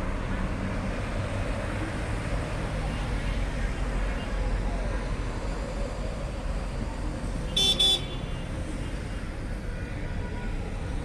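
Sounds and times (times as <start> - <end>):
car horn toots: 7.6 - 8.2.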